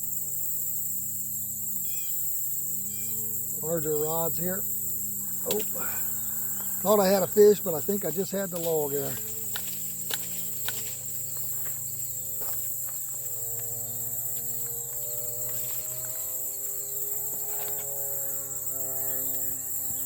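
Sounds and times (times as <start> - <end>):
high insect chorus: 0.0 - 20.0
low hum drifting in pitch: 2.6 - 8.2, 9.1 - 20.0
faint clicks: 5.2 - 11.5.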